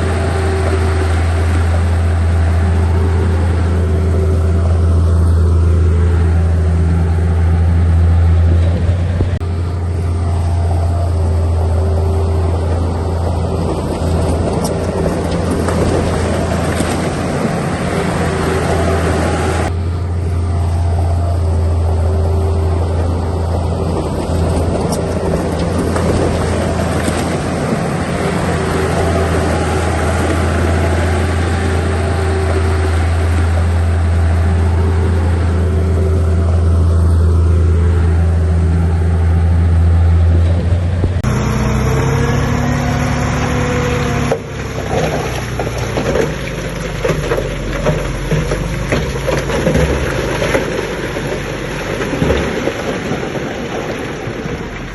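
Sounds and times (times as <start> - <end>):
heavy diesel engine humming: 0.0 - 54.9.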